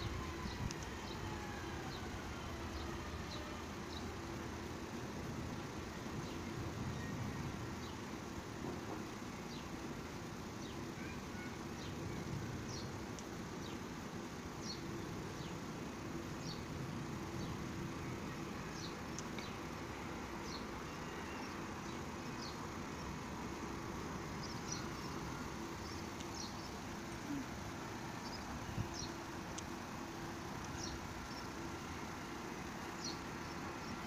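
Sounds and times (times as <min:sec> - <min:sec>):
electric train humming: 0:00.0 - 0:06.2
small birds chirping: 0:00.0 - 0:34.0.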